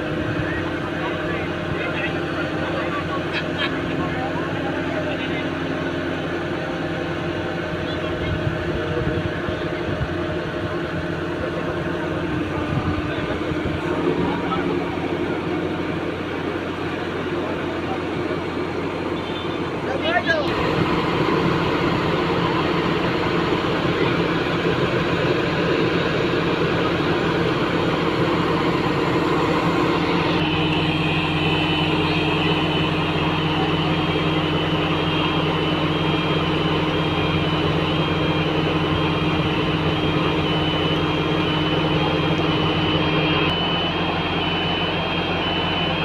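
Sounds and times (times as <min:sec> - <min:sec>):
diesel engine running: 0:00.0 - 0:46.0
two-pitch warning alarm beeps: 0:28.1 - 0:46.0.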